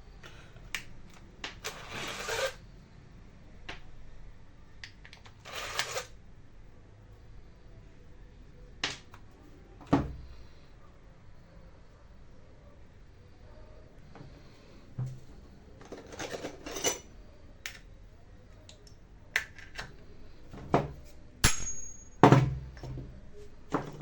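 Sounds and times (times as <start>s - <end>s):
sharp ringing metallic hit: 21.4s - 22.3s
metal tools clinking on workbench: 21.4s - 22.4s.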